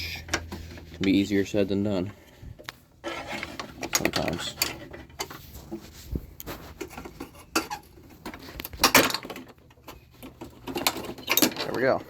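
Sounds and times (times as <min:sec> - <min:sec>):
metal parts clinking and rattling: 0:03.0 - 0:05.5, 0:06.8 - 0:12.0.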